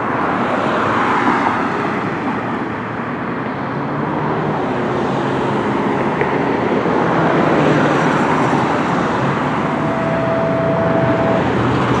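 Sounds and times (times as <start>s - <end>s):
road traffic noise: 0.0s - 12.0s
steady tone: 9.6s - 12.0s.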